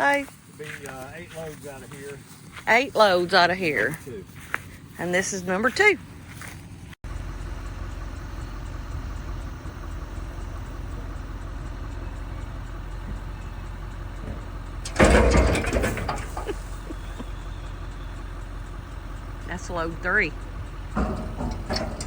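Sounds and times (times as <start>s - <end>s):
vehicle engine low rumble: 0.0s - 22.0s
loud clattering rattle: 9.8s - 22.0s.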